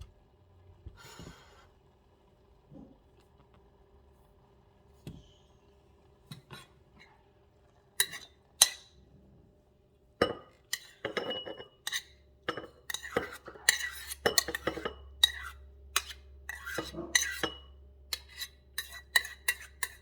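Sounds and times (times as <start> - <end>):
dishes and utensils clinking: 8.0 - 9.0, 10.2 - 20.0.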